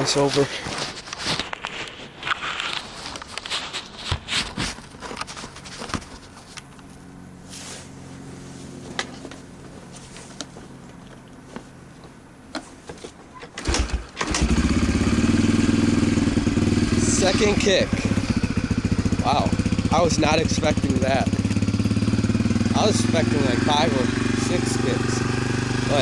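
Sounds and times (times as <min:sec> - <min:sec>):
dirt bike engine running: 0:13.7 - 0:26.0.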